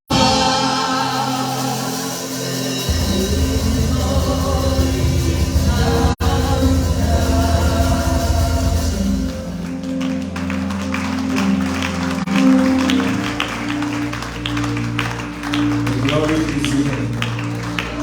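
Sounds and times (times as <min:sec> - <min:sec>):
keyboard chords: 0:00.1 - 0:18.0
steady bass note: 0:02.9 - 0:09.6.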